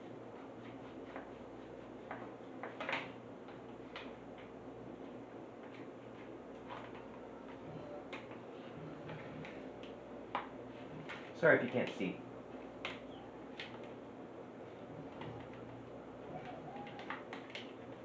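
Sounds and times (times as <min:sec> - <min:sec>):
low room hum: 0:00.0 - 0:18.0
packaging being handled and opened: 0:16.2 - 0:18.0.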